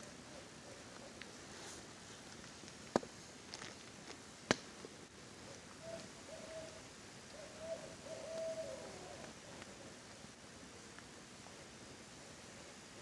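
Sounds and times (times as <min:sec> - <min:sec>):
rain hiss: 0:00.0 - 0:13.0
campfire crackling and popping: 0:02.2 - 0:05.7, 0:09.2 - 0:11.2
owl hooting: 0:05.5 - 0:10.0.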